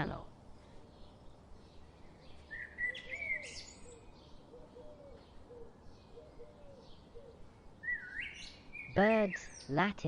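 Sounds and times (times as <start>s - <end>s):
birds calling low arched notes: 0.0s - 10.0s
high bird chirps: 2.2s - 4.5s, 6.0s - 9.8s.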